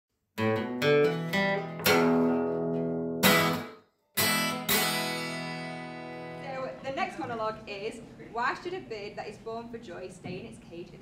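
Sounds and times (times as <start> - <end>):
acoustic guitar strumming chords: 0.4 - 6.7.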